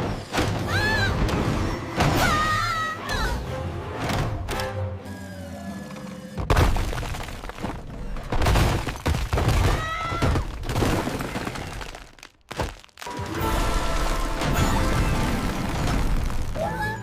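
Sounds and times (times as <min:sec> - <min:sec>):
background music: 0:00.0 - 0:05.9, 0:13.0 - 0:17.0
breaking and rumbling impacts: 0:06.4 - 0:16.6.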